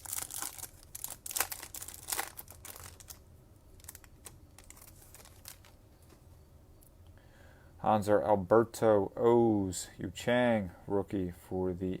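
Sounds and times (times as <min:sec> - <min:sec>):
foil wrapper crinkling: 0:00.0 - 0:05.8
cards rustling and clicking: 0:03.8 - 0:06.2.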